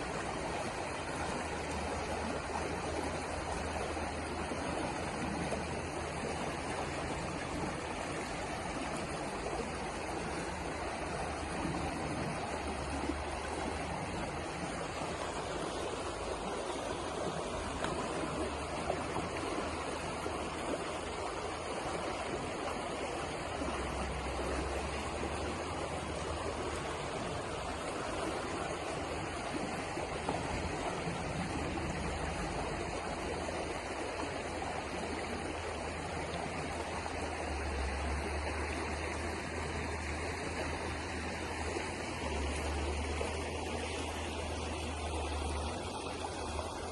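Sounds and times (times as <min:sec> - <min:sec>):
river water flowing over rocks: 0:00.0 - 0:46.9.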